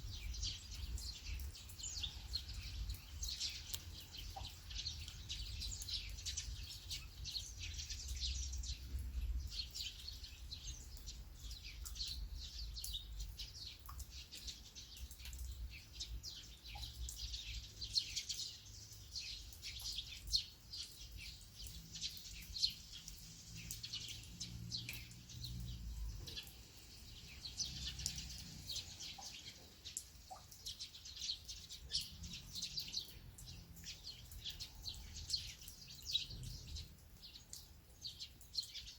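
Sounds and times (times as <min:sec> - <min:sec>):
birds chirping: 0:00.0 - 0:38.9
rain falling and dripping: 0:00.0 - 0:38.9.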